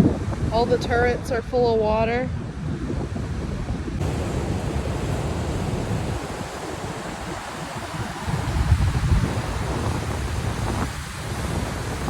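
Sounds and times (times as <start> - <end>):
wind buffeting microphone: 0.0 - 12.0
surf breaking on rocks: 3.9 - 12.0.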